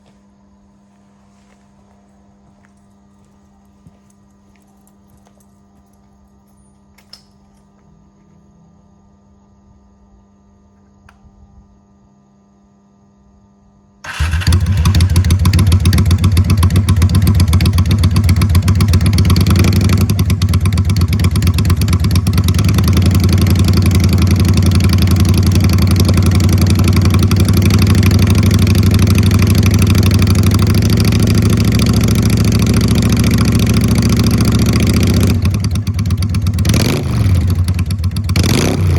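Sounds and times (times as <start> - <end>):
faint steady hum: 0.0 - 14.1
motorcycle engine idling loudly: 14.1 - 38.9.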